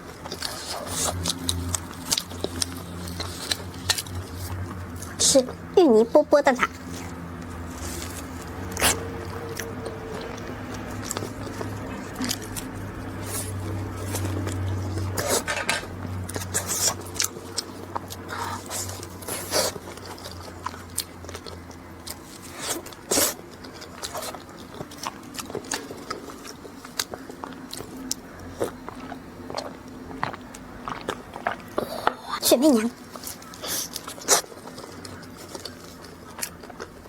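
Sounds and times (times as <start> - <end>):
low steady hum: 0.0 - 37.0
pastry crackling being chewed: 0.0 - 37.0.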